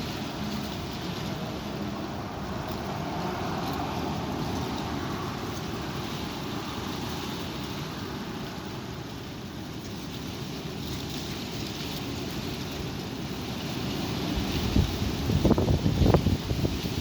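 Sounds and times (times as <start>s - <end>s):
strong wind buffeting microphone: 12.4s - 17.0s.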